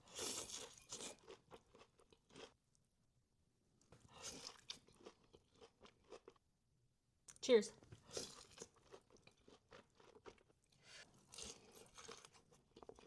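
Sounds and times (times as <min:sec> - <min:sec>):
person chewing crunchy food: 0:00.0 - 0:02.6, 0:04.0 - 0:06.4, 0:08.0 - 0:13.0.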